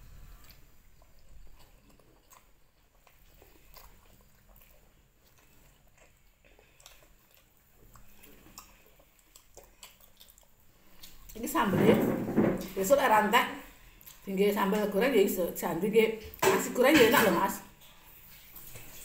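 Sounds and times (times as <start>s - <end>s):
quiet chewing: 0.0s - 11.5s, 13.6s - 15.0s, 17.6s - 19.0s.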